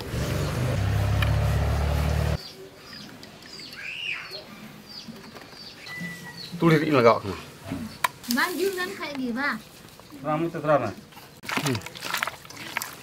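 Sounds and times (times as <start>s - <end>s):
birds chirping: 0.4s - 8.1s.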